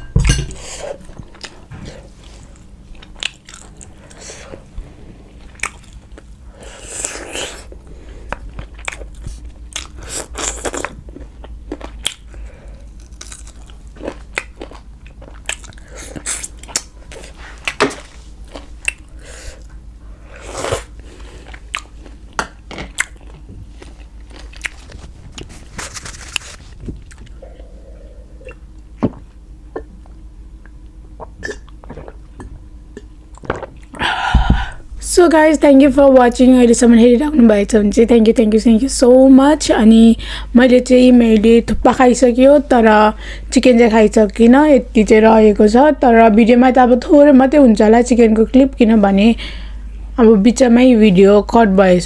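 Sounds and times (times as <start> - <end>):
wet mouth clicks and crunches: 13.0 - 16.9, 18.8 - 19.1, 21.6 - 25.5
chewing chicken close up: 21.5 - 25.6.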